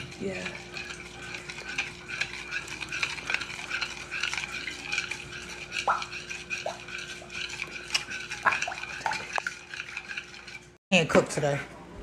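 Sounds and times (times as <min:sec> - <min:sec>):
utensil scraping food in pan: 0:00.0 - 0:11.6.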